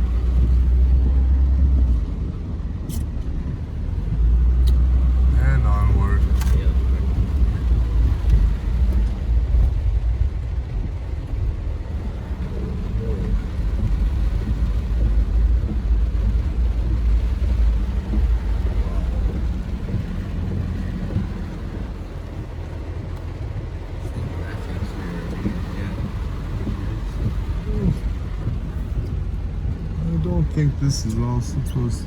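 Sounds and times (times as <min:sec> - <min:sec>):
vehicle engine humming: 0:00.0 - 0:32.0.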